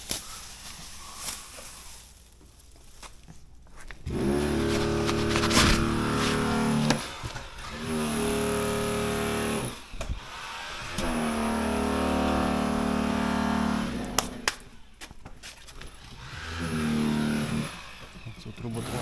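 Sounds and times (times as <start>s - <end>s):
motor running: 4.0s - 15.0s, 15.8s - 19.0s.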